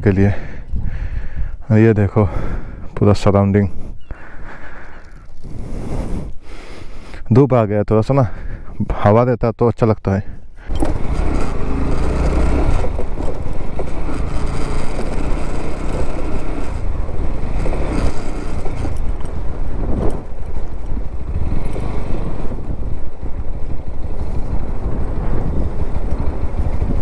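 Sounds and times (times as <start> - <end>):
motorboat engine droning: 10.6 - 27.0.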